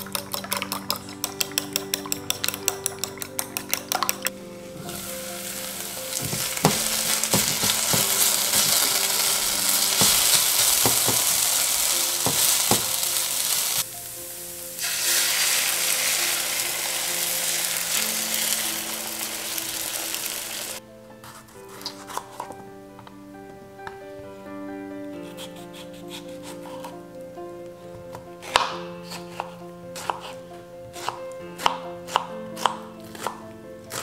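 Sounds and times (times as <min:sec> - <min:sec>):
potato sizzling in frying pan: 0:04.7 - 0:20.8
spatula knocking and scraping: 0:06.1 - 0:09.2, 0:09.8 - 0:11.5, 0:12.2 - 0:13.0.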